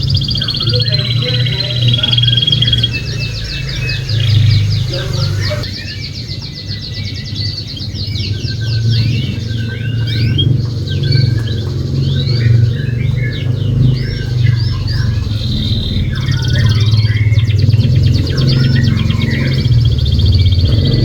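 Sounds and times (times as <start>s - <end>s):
steady low hum: 0.0s - 5.7s, 8.8s - 21.0s
canary singing: 0.0s - 21.0s.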